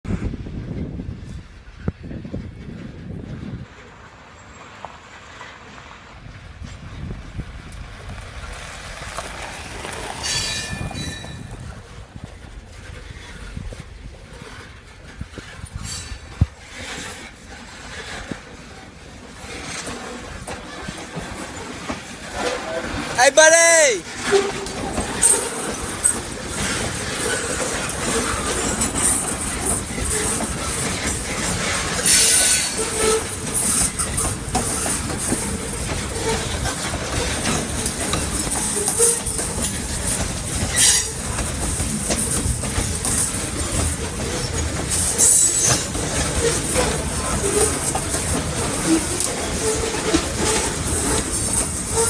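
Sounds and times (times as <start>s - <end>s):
train wheels rumbling on rails: 0.0s - 52.0s
wheel squeals: 9.1s - 11.8s, 24.1s - 52.0s.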